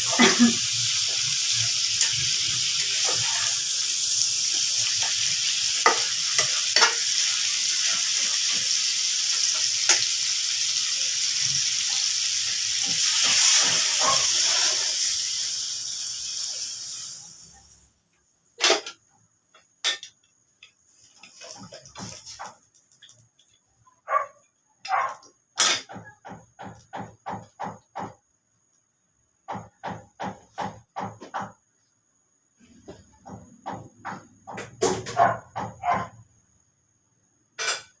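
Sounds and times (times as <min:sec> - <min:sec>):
food sizzling in a frying pan: 0:00.0 - 0:18.0, 0:19.7 - 0:23.8.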